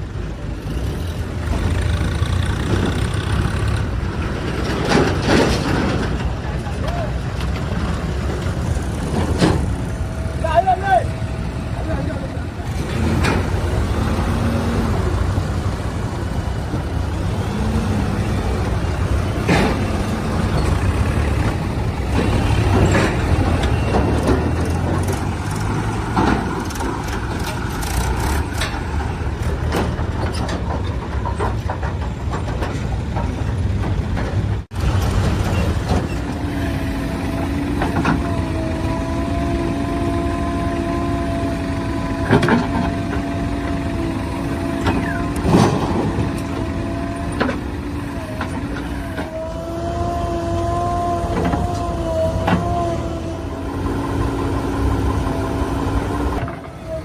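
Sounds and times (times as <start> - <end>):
heavy diesel machinery running: 0.0 - 57.0
knocks and clanks: 1.5 - 10.1, 18.9 - 36.4, 44.6 - 49.4.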